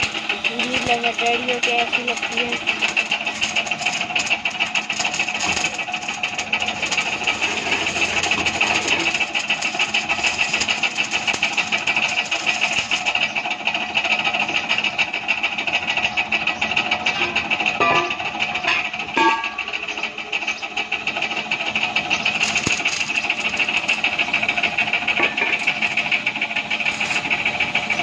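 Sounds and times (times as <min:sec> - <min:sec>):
machine rattling and hissing: 0:00.0 - 0:28.0.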